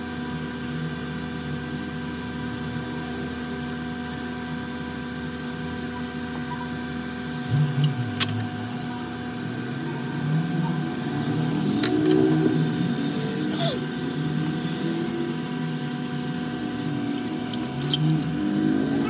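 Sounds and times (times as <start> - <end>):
electrical hum with tones: 0.0 - 19.0.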